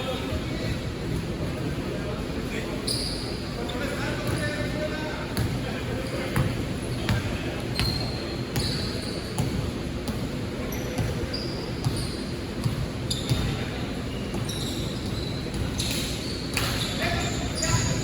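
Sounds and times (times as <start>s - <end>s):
basketball dribbling on court: 11.0s - 13.6s.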